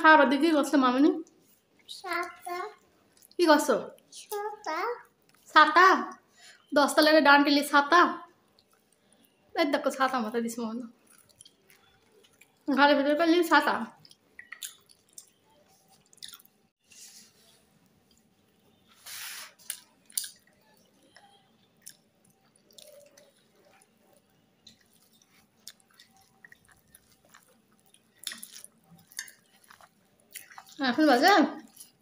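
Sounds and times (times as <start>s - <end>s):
chewing with wet mouth clicks: 2.2s - 3.4s, 8.4s - 9.4s, 10.9s - 12.7s, 13.9s - 16.6s, 19.6s - 32.0s
short hiss: 18.9s - 19.7s.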